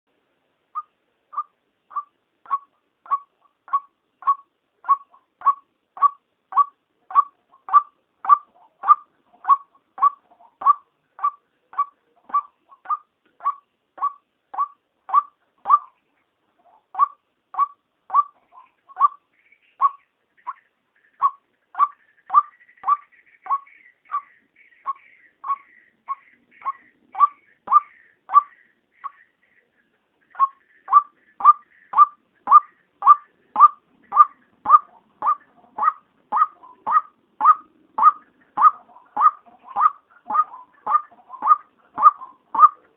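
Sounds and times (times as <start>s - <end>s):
higher bird chattering: 0.8s - 16.0s, 16.6s - 42.9s
waterhen calling: 0.8s - 16.0s, 16.6s - 42.9s.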